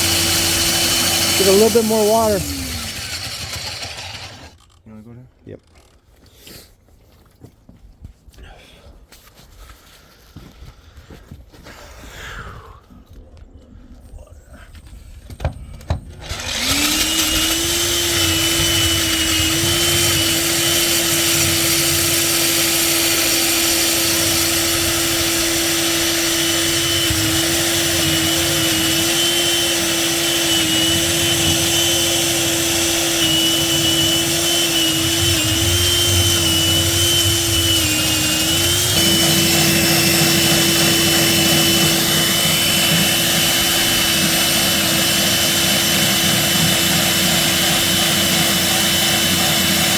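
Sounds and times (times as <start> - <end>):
diamond core drill running: 0.0 - 4.8, 15.8 - 49.9.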